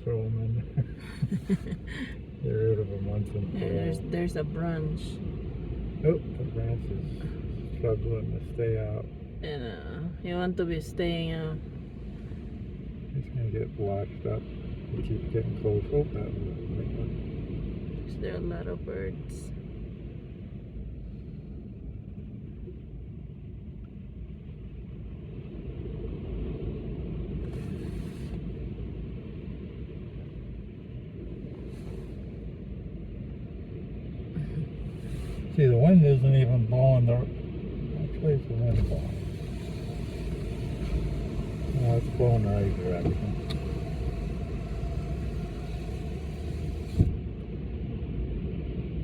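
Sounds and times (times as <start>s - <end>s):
wind rumbling on microphone: 0.0s - 49.0s
lake surf: 0.1s - 19.7s, 34.6s - 49.0s
waves breaking: 25.4s - 49.0s
wind buffeting microphone: 37.4s - 49.0s.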